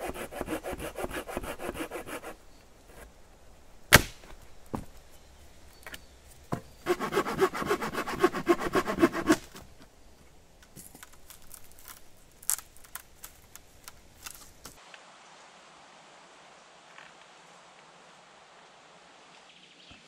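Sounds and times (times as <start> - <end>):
hand saw cutting wood: 0.0 - 2.4, 6.8 - 9.6
knocks and snaps of wood: 3.9 - 4.9.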